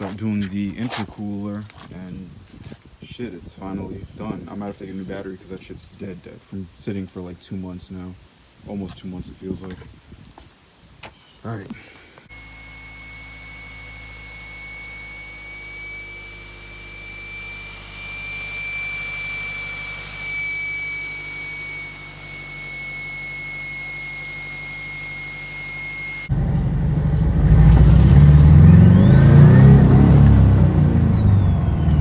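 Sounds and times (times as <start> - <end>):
turbo whistle: 12.3 - 26.3
car engine hum: 26.3 - 32.0.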